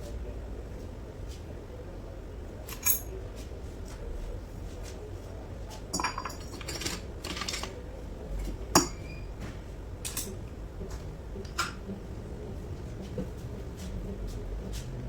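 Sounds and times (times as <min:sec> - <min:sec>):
metal parts and tools clinking: 0:02.6 - 0:03.1, 0:06.0 - 0:07.8
ringing metallic clink: 0:02.7 - 0:03.1.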